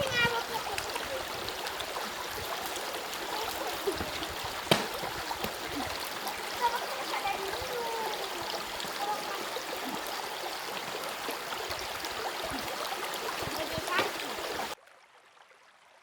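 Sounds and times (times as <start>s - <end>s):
stream water running: 0.0s - 16.0s
sharp knock: 4.7s - 5.0s.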